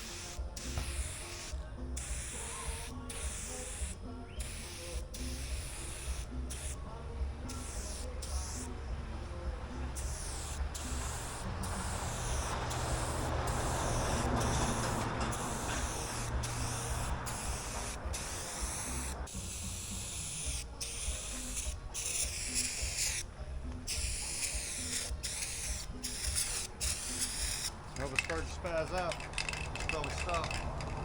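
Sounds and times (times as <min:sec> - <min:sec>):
spray paint can hissing: 0:00.0 - 0:06.9, 0:07.5 - 0:08.8, 0:09.9 - 0:28.5.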